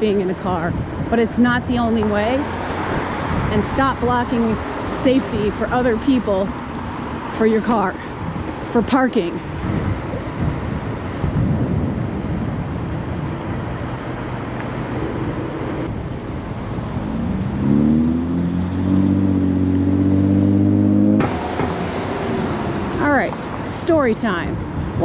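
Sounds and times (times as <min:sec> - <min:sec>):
wind and road noise: 0:00.0 - 0:25.0
vehicle engine drone: 0:09.4 - 0:23.7.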